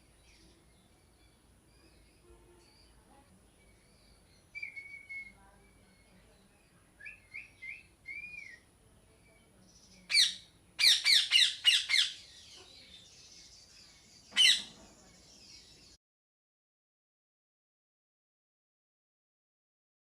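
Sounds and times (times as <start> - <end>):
soft whistled chirps: 3.9 - 5.5, 7.0 - 8.7
parrot squawking: 10.1 - 12.2, 14.4 - 14.8.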